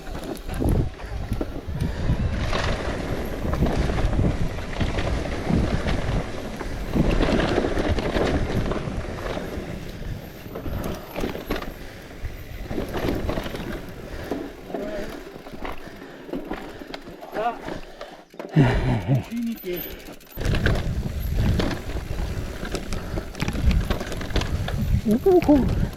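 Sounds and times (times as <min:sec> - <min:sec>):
wind buffeting microphone: 0:00.0 - 0:14.4, 0:20.4 - 0:25.9.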